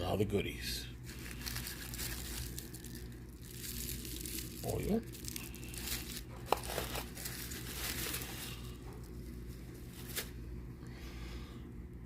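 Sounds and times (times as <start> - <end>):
packaging crinkling and rustling: 1.1 - 10.4.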